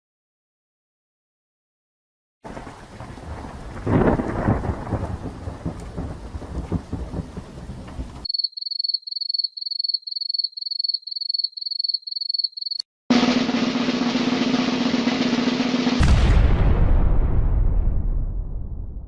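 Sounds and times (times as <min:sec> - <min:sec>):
steady rain: 0:02.4 - 0:08.3
thunderclap rumbling: 0:02.4 - 0:08.3, 0:13.1 - 0:19.0.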